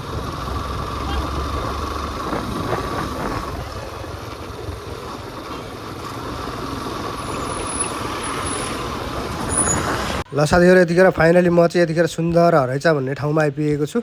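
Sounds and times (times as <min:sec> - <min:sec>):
motorcycle engine: 0:00.0 - 0:10.3
road traffic: 0:00.0 - 0:12.0
wind rushing: 0:01.8 - 0:05.0.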